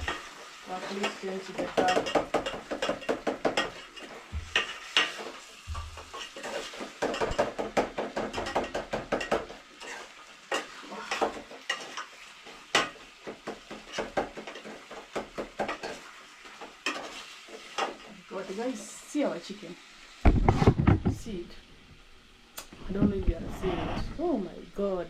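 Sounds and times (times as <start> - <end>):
spoon stirring in a pot: 0.0 - 18.9.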